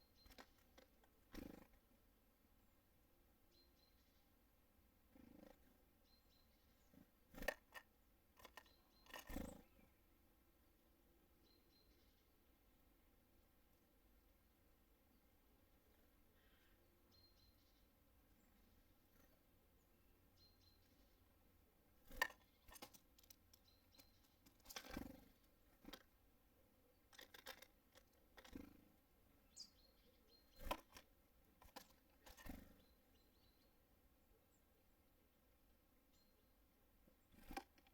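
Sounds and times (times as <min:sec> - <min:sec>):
small birds calling: 0:00.0 - 0:02.0, 0:03.4 - 0:04.4, 0:05.0 - 0:10.2, 0:11.3 - 0:12.6, 0:15.0 - 0:34.8, 0:36.0 - 0:37.9
birds pecking at wooden feeder: 0:00.1 - 0:01.9, 0:07.3 - 0:09.6, 0:22.0 - 0:29.0, 0:30.4 - 0:32.9, 0:37.2 - 0:37.9
high bird chirp: 0:29.4 - 0:30.7.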